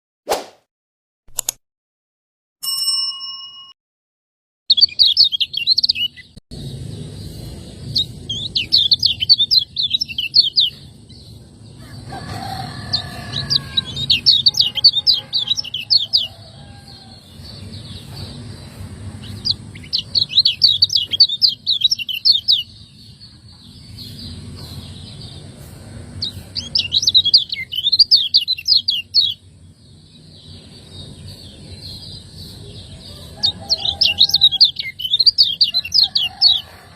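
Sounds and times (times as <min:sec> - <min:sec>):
bird chattering chirps: 0:04.7 - 0:36.8
steady low background hum: 0:06.5 - 0:35.9.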